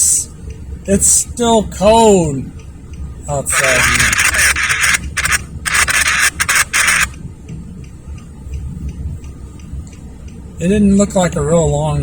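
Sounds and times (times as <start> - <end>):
low steady rumble: 0.0 - 12.0
rubbing on microphone: 3.5 - 7.2.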